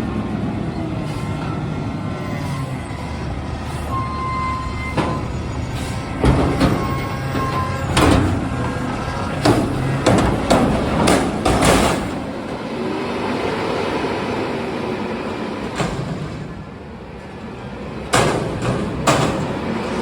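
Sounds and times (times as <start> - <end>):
garbage truck engine running: 0.0 - 20.0
loud metallic bangs and clatter: 4.9 - 12.7, 18.0 - 20.0.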